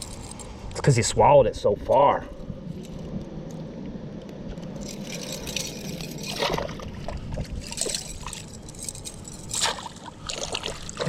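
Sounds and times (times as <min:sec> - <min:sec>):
water sloshing and trickling: 0:04.8 - 0:11.0
small water splashes: 0:09.5 - 0:11.0.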